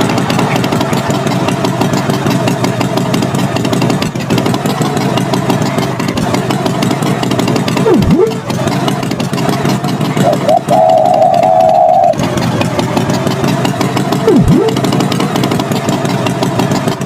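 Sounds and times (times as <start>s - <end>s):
tractor engine running: 0.0s - 17.0s
swooping tone: 7.8s - 8.5s, 10.2s - 12.2s, 14.2s - 14.9s.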